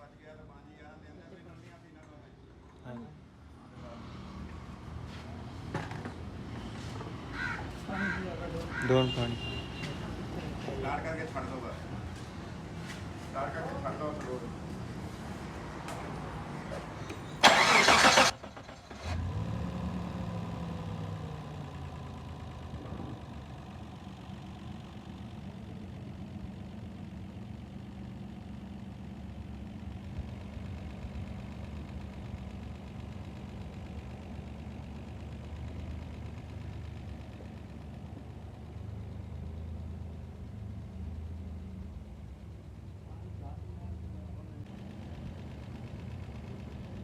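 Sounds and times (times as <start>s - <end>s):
engine cranking on starter: 17.0s - 21.2s
car engine idling: 17.1s - 47.0s.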